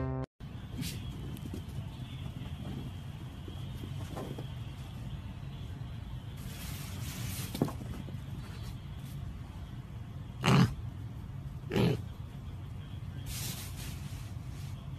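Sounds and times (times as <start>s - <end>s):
piglet grunting: 10.4s - 10.8s, 11.7s - 12.0s.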